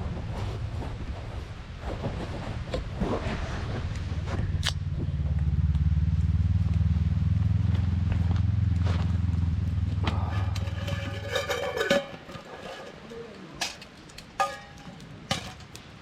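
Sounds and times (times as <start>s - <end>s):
motorcycle engine idling: 4.8s - 11.4s.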